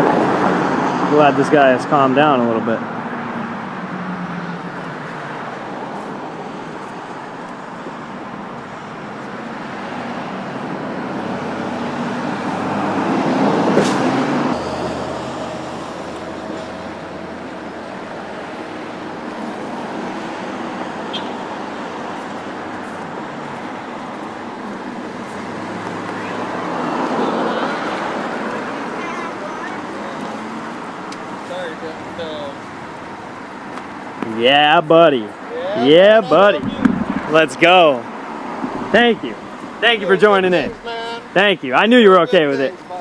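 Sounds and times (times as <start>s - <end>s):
road vehicle passing: 0.0s - 43.0s.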